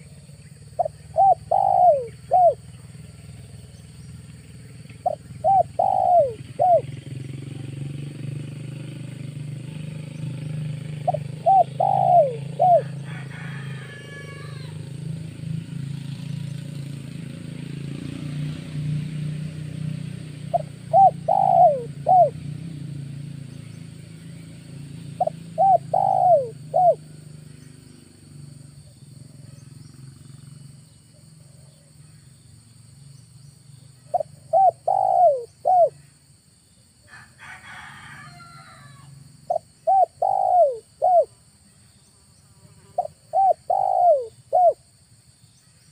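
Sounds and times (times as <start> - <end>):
dove cooing: 0.7 - 2.9, 4.9 - 7.7, 10.8 - 14.8, 20.5 - 22.5, 25.2 - 27.1, 34.0 - 36.0, 38.7 - 41.3, 42.8 - 44.8.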